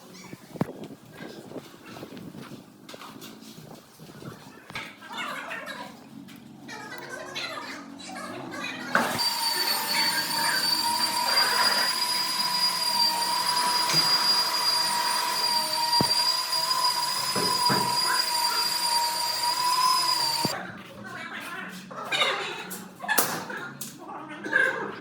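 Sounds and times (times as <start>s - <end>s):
power tool whining: 9.0s - 20.6s.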